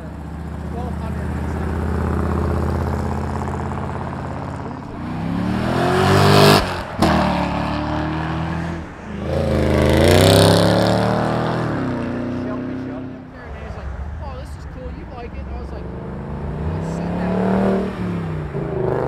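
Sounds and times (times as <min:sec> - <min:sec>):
car engine revving through gears: 0:01.5 - 0:13.3, 0:15.6 - 0:19.0.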